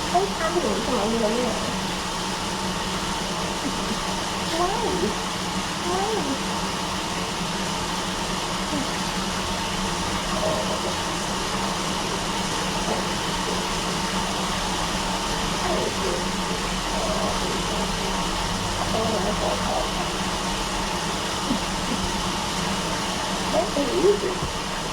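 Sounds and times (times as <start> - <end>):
fan-like whooshing hum: 0.0 - 24.9.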